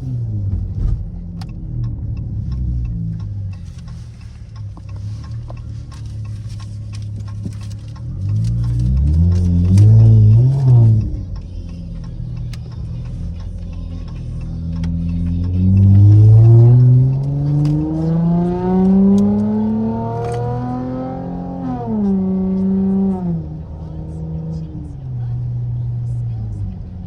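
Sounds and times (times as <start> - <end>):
car engine revving and accelerating: 0.0 - 27.0.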